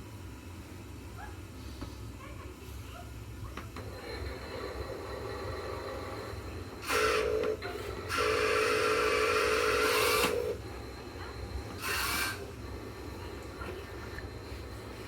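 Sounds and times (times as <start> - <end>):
toy excavator motors whirring: 3.8 - 14.8.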